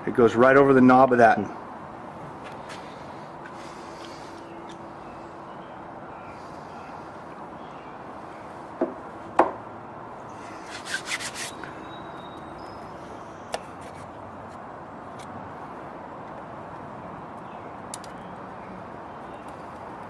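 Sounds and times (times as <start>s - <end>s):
sharp knocks on metal: 8.8s - 9.6s.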